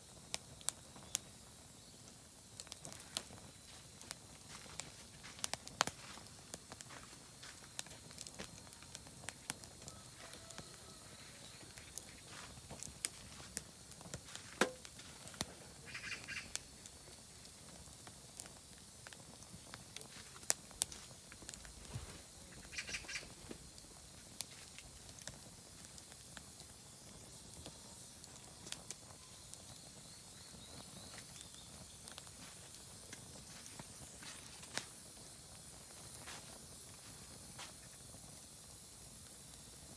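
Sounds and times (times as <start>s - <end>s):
campfire crackling and popping: 0.0s - 39.9s
bird harsh calls: 15.9s - 16.5s, 22.7s - 23.3s.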